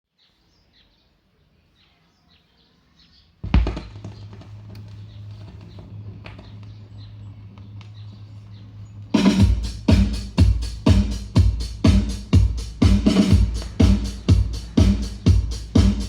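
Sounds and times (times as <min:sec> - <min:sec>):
turntable stylus thump: 0:03.4 - 0:04.5
steady low hum: 0:03.4 - 0:16.0
record crackle and clicks: 0:03.5 - 0:09.1.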